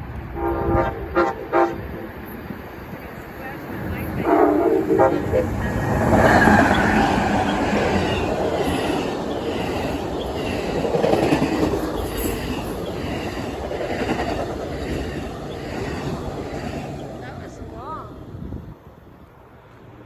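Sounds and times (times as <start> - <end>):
passenger train passing: 0.0 - 20.0
wheels clicking over rail joints: 5.6 - 17.4.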